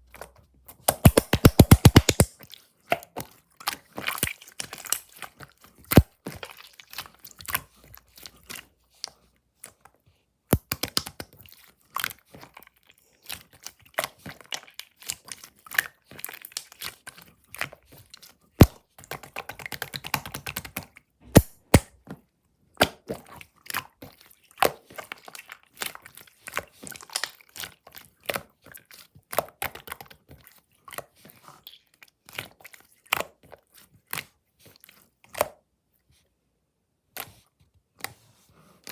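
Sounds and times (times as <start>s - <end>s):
slime squished by hand popping: 0.9s - 2.4s, 21.3s - 21.9s.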